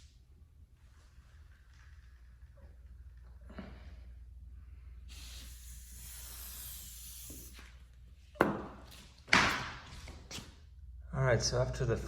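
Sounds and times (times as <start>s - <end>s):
spray can hissing: 5.1s - 7.7s.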